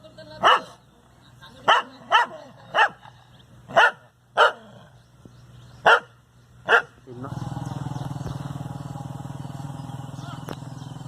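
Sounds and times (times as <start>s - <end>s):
dog barking: 0.4s - 0.8s, 1.7s - 3.0s, 3.7s - 4.8s, 5.8s - 7.0s.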